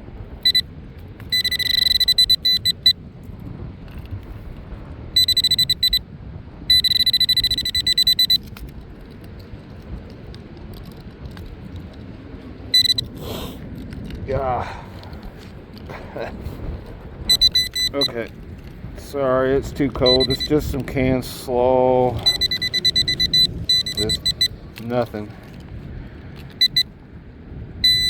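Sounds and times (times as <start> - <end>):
wind rumble: 0.0 - 28.0
metal detector pinpointer beeping: 0.4 - 3.0, 5.1 - 6.0, 6.6 - 8.7, 12.7 - 13.2, 17.2 - 18.4, 19.6 - 25.2, 26.4 - 26.9.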